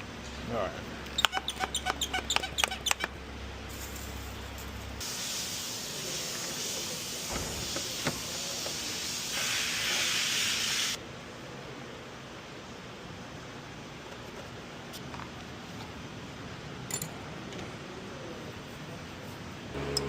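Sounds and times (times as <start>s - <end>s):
aerosol spraying hiss: 5.0s - 11.0s.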